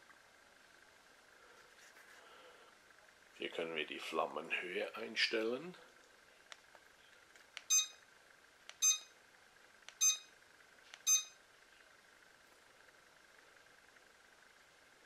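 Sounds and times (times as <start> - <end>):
short high beeps: 7.7 - 8.0, 8.8 - 9.2, 10.0 - 10.4, 11.0 - 11.4.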